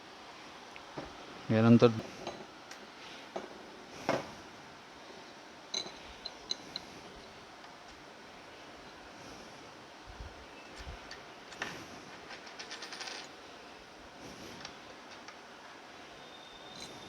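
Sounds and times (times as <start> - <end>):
metal parts and tools clinking: 5.7 - 6.9, 10.8 - 13.4, 16.7 - 17.0.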